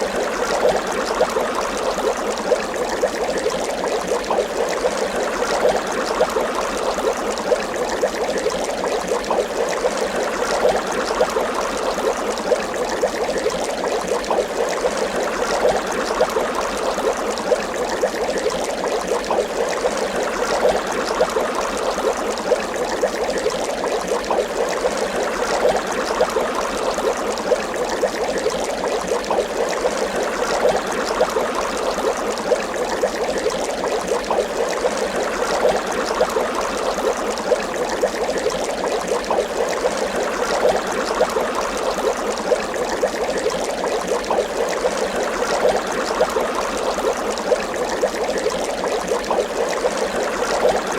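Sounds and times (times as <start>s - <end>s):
water bubbling: 0.0s - 50.9s.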